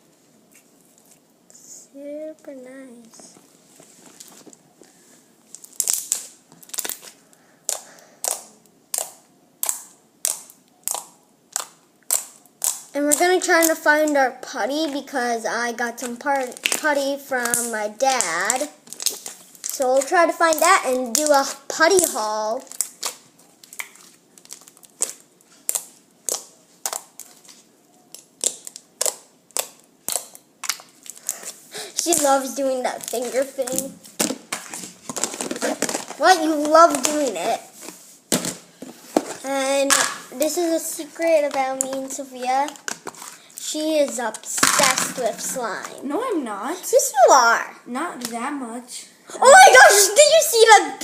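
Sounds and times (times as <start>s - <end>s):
slime squeezed with wet pops: 5.5s - 13.2s, 16.4s - 32.4s.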